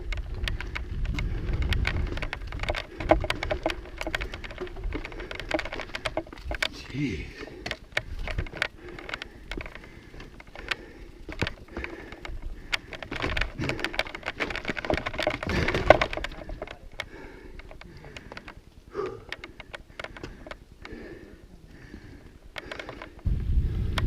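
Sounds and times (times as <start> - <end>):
tyres rumbling on dirt: 0.0 - 23.2
bike rattling with sharp clicks: 0.0 - 24.0.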